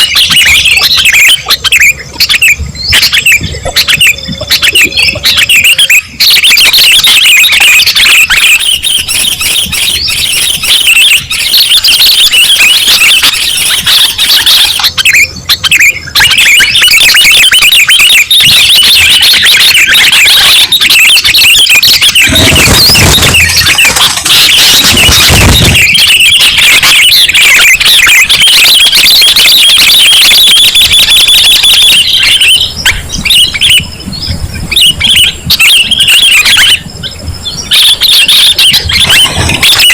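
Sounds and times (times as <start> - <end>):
bulbuls chattering: 0.0 - 39.9
low thumps: 22.2 - 26.1.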